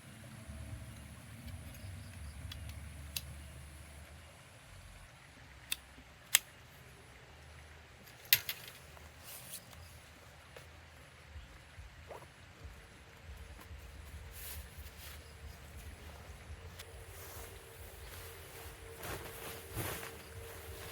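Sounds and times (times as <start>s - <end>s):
faint rustling: 13.6s - 20.9s.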